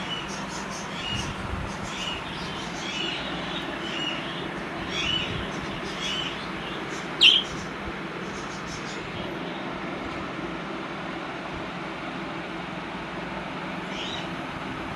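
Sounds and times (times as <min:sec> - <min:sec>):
baby birds chirping: 0:00.0 - 0:09.2
low background hum: 0:00.0 - 0:14.9.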